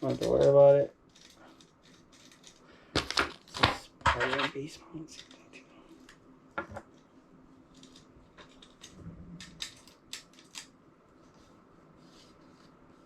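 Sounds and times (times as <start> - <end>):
small hardware clicking and rustling: 0.0 - 5.4, 7.7 - 10.8.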